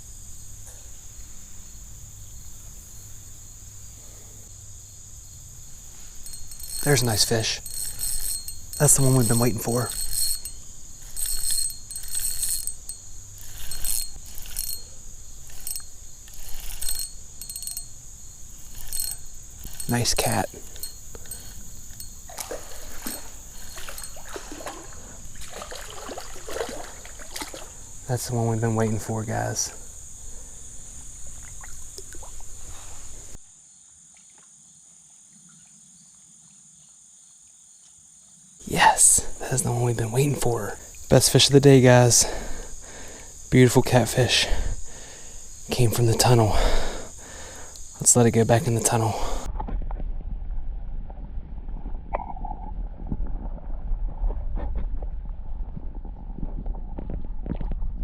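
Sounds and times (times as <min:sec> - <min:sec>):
insects chirring: 0:00.0 - 0:49.5
fishing reel cranking and clicking: 0:06.2 - 0:24.2
water splashing: 0:22.3 - 0:27.9.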